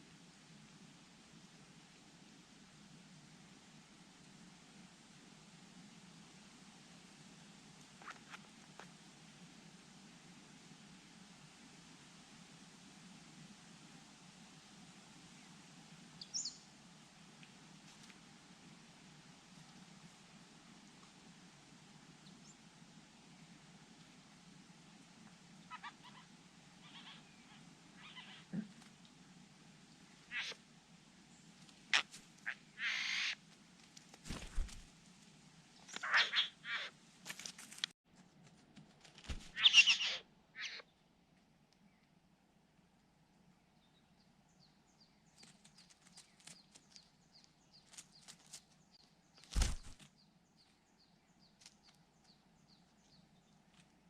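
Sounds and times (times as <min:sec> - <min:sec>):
bird chirping: 0:39.5 - 0:40.9.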